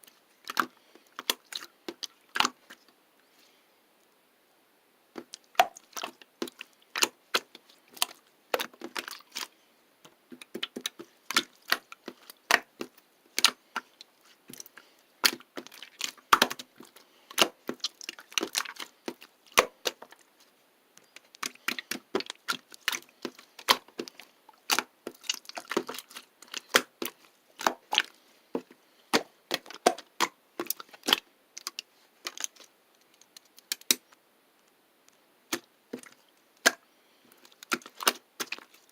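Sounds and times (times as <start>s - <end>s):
sharp clicks and cracks: 29.1s - 38.9s.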